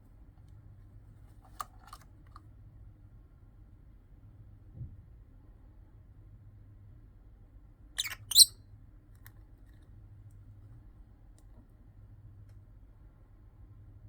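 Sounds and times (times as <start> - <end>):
lovebird shrill calls: 8.0 - 8.5.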